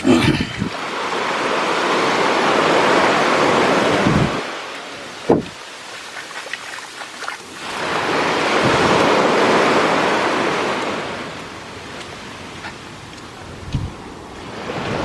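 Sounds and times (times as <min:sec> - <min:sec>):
sea wave breaking on shore: 0:13.4 - 0:15.0.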